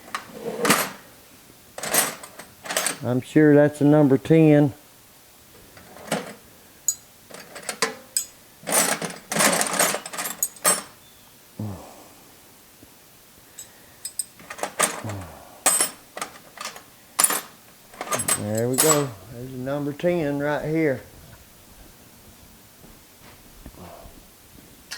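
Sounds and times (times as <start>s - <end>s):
metal wrenches clinking: 1.8s - 3.1s, 5.8s - 11.0s, 13.6s - 19.2s
man humming: 11.6s - 12.4s, 14.9s - 15.8s, 23.7s - 24.3s.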